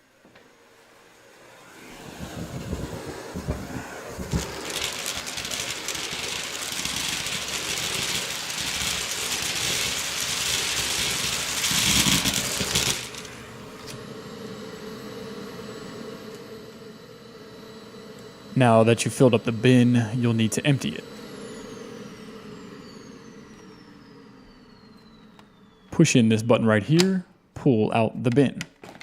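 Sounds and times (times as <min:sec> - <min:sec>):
vacuum cleaner running: 0:00.0 - 0:27.1
debris rattling into vacuum: 0:02.3 - 0:13.4.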